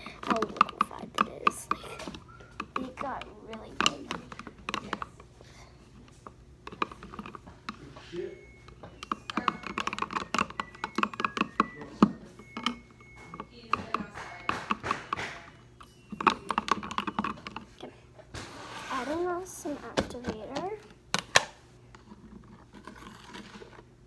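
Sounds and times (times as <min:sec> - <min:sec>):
tool stirring watery slime: 0:00.0 - 0:05.1, 0:06.1 - 0:15.5.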